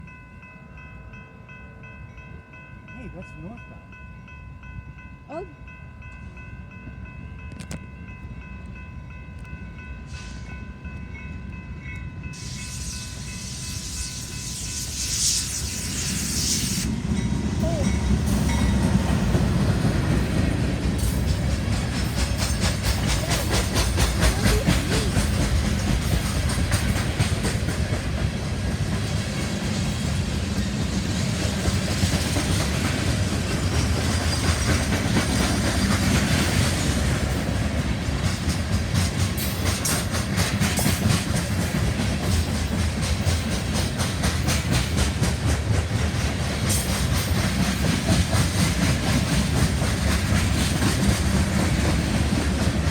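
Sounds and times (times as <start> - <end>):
low train rumble: 0.0 - 52.9
train wheels clacking on rail joints: 17.0 - 52.9.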